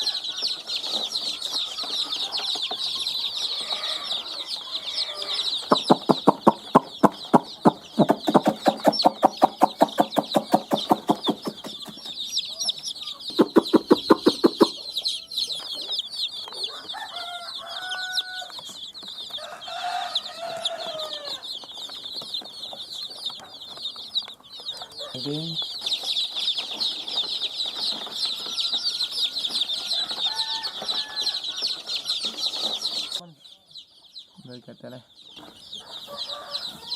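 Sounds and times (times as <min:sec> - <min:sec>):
hen clucking: 0:00.0 - 0:19.0
chicks peeping: 0:00.0 - 0:36.9.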